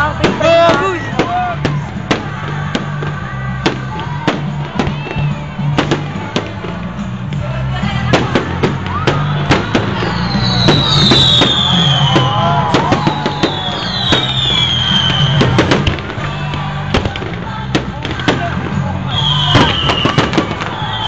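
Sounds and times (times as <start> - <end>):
fireworks bangs and crackles: 0.0 - 21.0
loud music with bass: 0.0 - 21.0
falling firework whistles: 8.9 - 16.6, 19.1 - 21.0.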